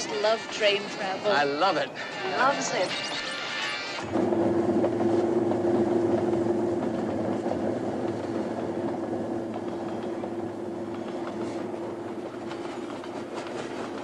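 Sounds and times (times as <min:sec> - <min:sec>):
train cars rolling on track: 0:00.0 - 0:14.0
steady hum: 0:04.0 - 0:13.4.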